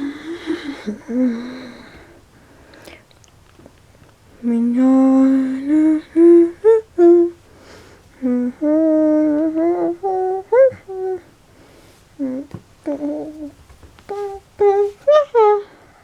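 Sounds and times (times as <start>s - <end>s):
woman humming: 0.0s - 2.2s, 4.4s - 7.4s, 8.2s - 11.3s, 12.2s - 15.9s.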